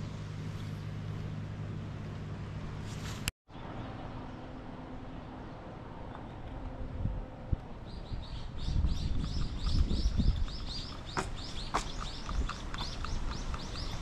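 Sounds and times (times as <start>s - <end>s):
wind rumble on microphone: 6.2s - 14.0s
bird chirping: 7.8s - 14.0s
sharp clicks: 9.2s - 14.0s.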